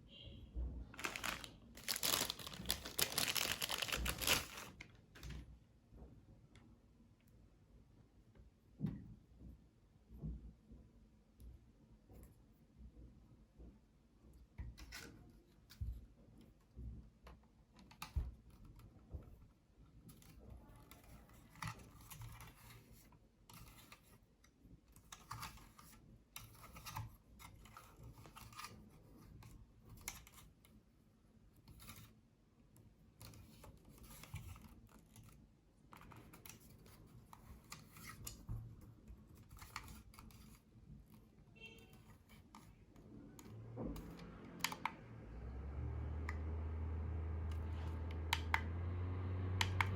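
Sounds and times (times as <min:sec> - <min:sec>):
hands handling packaging: 0:01.0 - 0:05.4.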